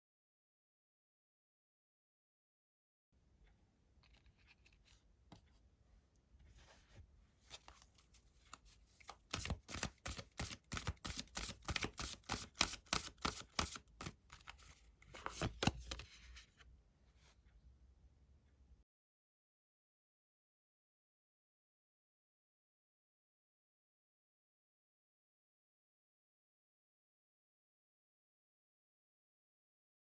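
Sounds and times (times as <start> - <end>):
cards rustling: 7.4 - 16.4.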